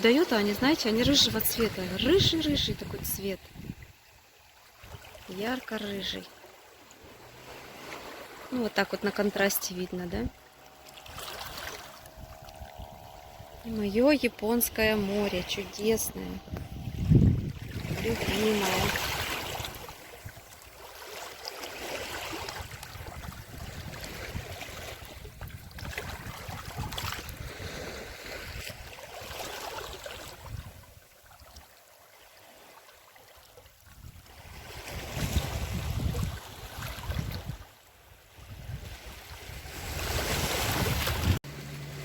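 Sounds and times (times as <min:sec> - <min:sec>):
wind buffeting microphone: 0:00.8 - 0:04.0, 0:12.0 - 0:20.6, 0:22.3 - 0:28.9, 0:33.9 - 0:37.6, 0:38.4 - 0:41.4
surf washing on shore: 0:04.7 - 0:31.0, 0:34.0 - 0:42.0.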